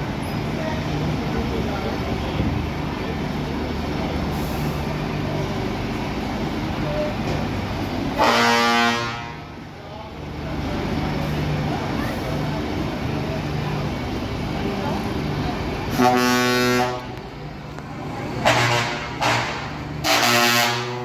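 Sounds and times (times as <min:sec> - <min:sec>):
truck diesel engines running: 0:00.0 - 0:21.0
truck horn blast: 0:08.2 - 0:09.5, 0:15.9 - 0:17.2, 0:18.4 - 0:21.0.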